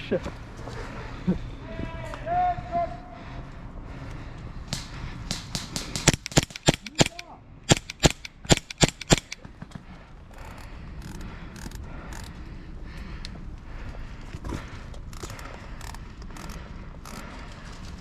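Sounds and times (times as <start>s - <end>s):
faint airsoft shots: 4.7s - 9.4s
airsoft gun shots: 5.3s - 9.4s.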